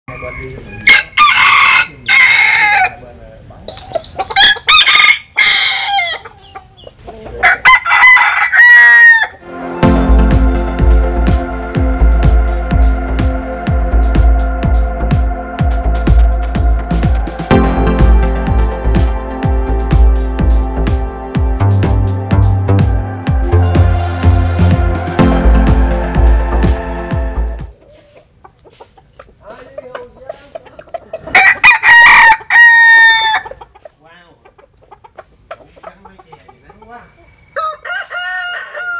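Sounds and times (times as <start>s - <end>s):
rooster crowing: 0.1s - 3.0s, 4.3s - 6.3s, 7.4s - 9.5s, 31.3s - 33.6s, 37.5s - 38.9s
chickens clucking softly: 3.6s - 4.7s, 6.1s - 7.4s, 27.7s - 31.4s, 33.4s - 37.9s
electronic music with steady beat: 9.4s - 27.8s.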